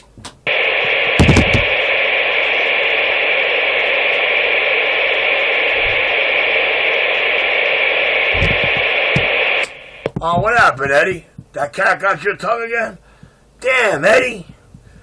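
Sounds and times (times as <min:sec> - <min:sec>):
radio static hiss: 0:00.4 - 0:13.0, 0:13.6 - 0:14.6
low thumps: 0:00.8 - 0:01.8, 0:05.7 - 0:06.1, 0:08.3 - 0:09.4.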